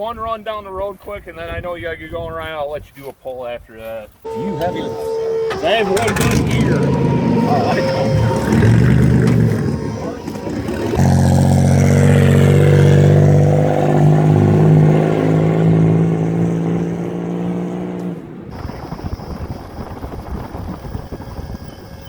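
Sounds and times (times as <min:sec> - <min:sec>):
wind and road noise: 0:04.1 - 0:22.0
engine running hard: 0:04.3 - 0:21.8.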